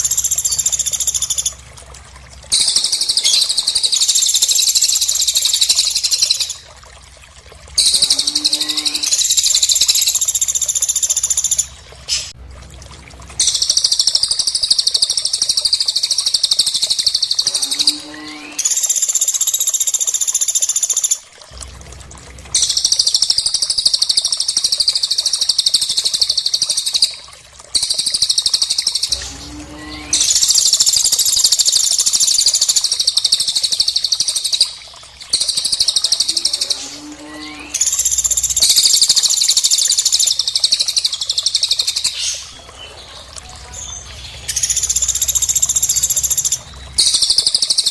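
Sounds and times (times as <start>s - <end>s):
songbird trilling: 2.5s - 6.5s.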